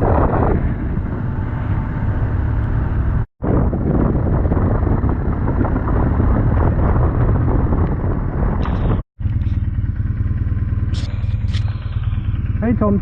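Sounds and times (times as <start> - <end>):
wind rushing over microphone: 0.0 - 9.1
motorcycle engine rumble: 0.0 - 13.0.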